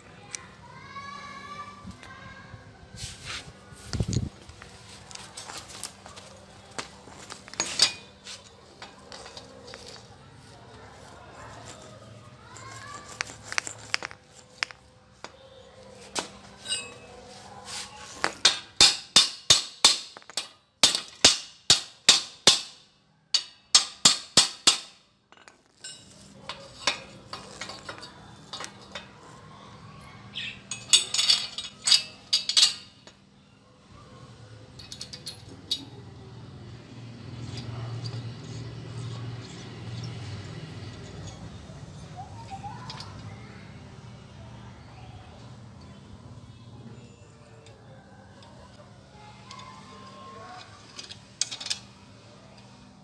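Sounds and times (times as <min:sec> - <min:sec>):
metal parts clinking: 0:05.1 - 0:15.3, 0:16.2 - 0:17.4, 0:18.1 - 0:29.4, 0:30.4 - 0:33.2, 0:34.7 - 0:36.2, 0:49.3 - 0:52.9
hammer striking metal: 0:18.4 - 0:25.0.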